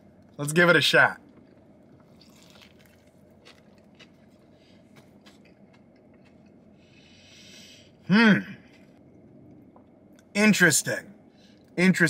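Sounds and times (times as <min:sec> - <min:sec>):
low steady hum: 0:00.0 - 0:12.0
faint chewing: 0:01.2 - 0:07.6.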